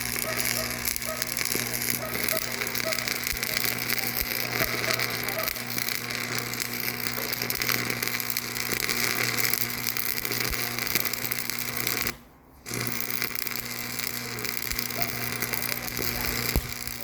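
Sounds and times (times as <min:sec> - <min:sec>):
machine humming: 0:00.0 - 0:10.9.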